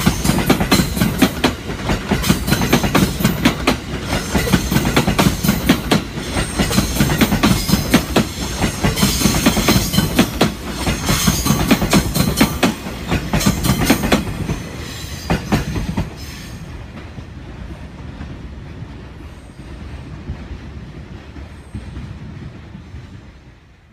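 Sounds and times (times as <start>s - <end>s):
train wheels clacking over rail joints: 0.0s - 17.2s
train rumble: 0.0s - 23.9s.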